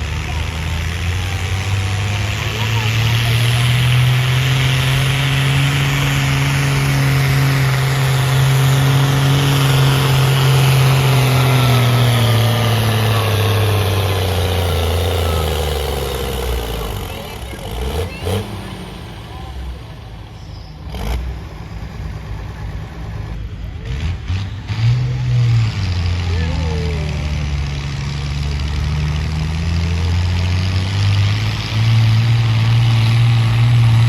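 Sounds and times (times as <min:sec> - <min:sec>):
tractor engine running under load: 0:00.0 - 0:34.0.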